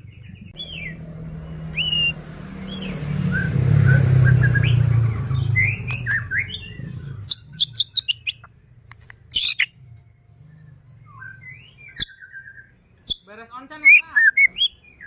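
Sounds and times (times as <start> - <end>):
bird singing whistled notes: 0.0 - 15.0.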